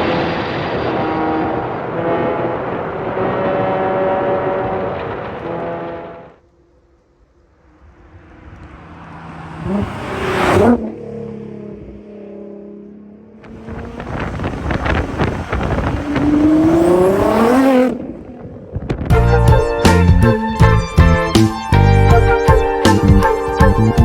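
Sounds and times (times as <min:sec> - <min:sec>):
car driving past at speed: 0:07.6 - 0:18.7
sports car engine accelerating: 0:07.6 - 0:19.1.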